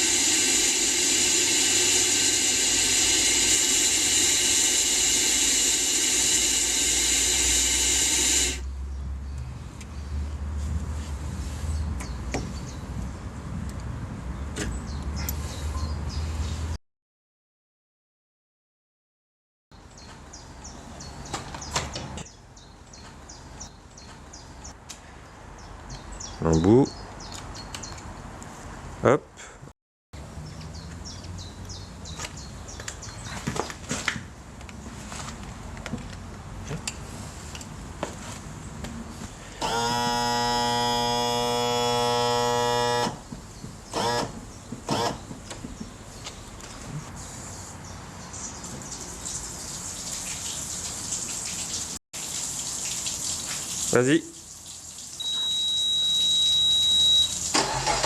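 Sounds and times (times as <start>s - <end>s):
small electric motor buzzing: 0.0s - 8.7s, 39.6s - 43.2s, 43.9s - 44.3s
outdoor background noise: 0.0s - 16.8s, 19.7s - 58.0s.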